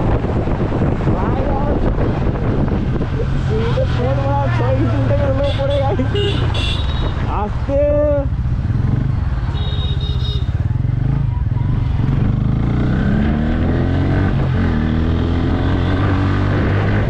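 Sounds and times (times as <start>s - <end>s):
motorcycle engine accelerating: 8.0s - 9.5s, 10.2s - 17.0s.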